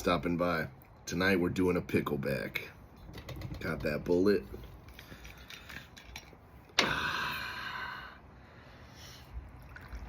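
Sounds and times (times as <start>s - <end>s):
liquid pouring into shot glass: 9.6s - 10.0s.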